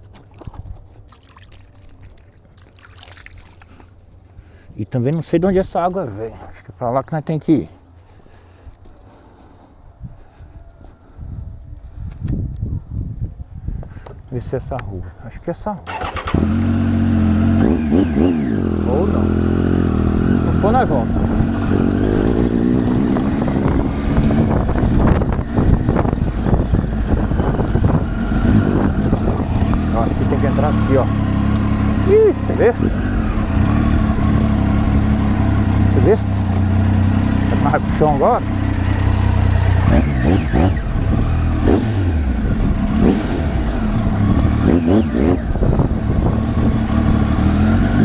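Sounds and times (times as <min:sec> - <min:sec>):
wind noise on microphone: 0:09.8 - 0:15.2, 0:20.0 - 0:30.4, 0:39.8 - 0:48.0
motorcycle engine running: 0:15.9 - 0:48.0.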